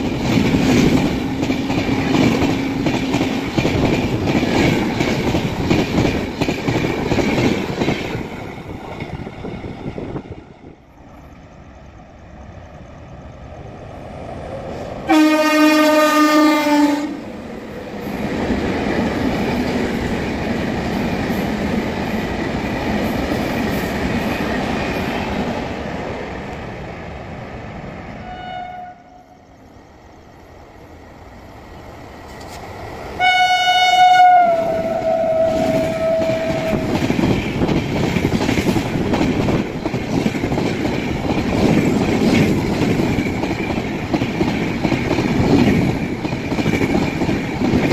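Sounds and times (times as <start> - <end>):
train coaches passing at speed: 0.0 - 47.9
locomotive horn blast: 15.1 - 17.2, 28.2 - 29.4, 33.2 - 36.8.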